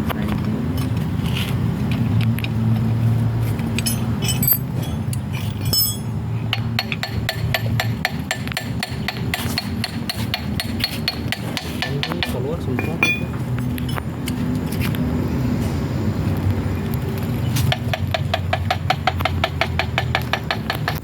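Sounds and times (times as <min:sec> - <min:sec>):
metal clinking and tapping: 0:03.7 - 0:08.7, 0:10.6 - 0:14.1
low steady hum: 0:12.7 - 0:14.0.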